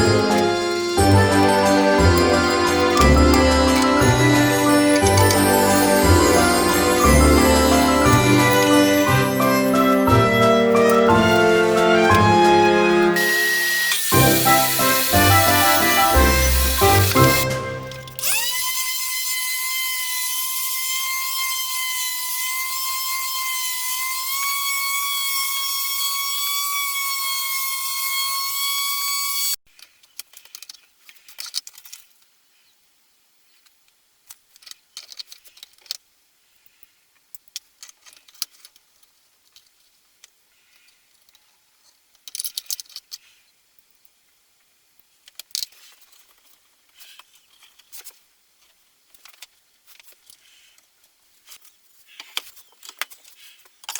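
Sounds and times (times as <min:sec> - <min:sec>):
power tool motor whining: 0:00.0 - 0:29.6.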